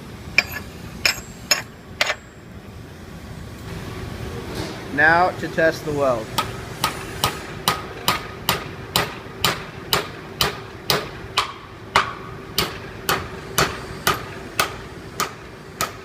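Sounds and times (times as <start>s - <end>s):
hammer striking steel: 0.4s - 2.4s, 6.4s - 16.0s.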